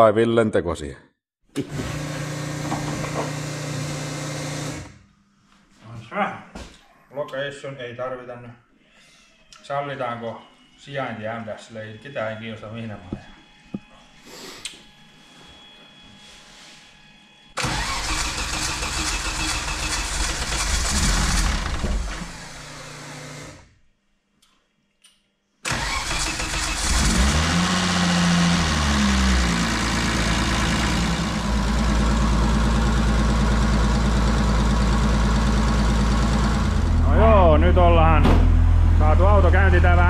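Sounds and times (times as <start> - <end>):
car engine starting and revving: 17.6 - 23.2, 25.7 - 40.0.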